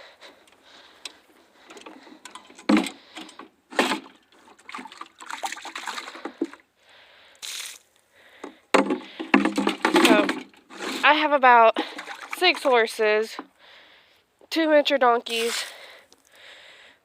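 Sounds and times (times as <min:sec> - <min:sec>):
water splashing and sloshing: 0:00.4 - 0:06.7, 0:08.4 - 0:13.6.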